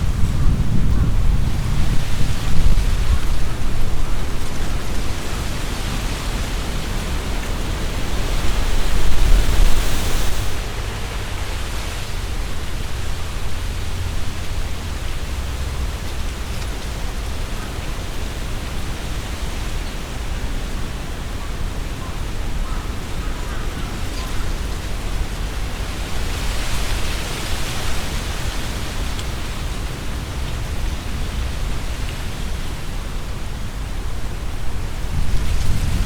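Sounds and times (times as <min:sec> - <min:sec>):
wind rumble on microphone: 0:00.0 - 0:36.0
wind rustling tree leaves: 0:00.0 - 0:36.0.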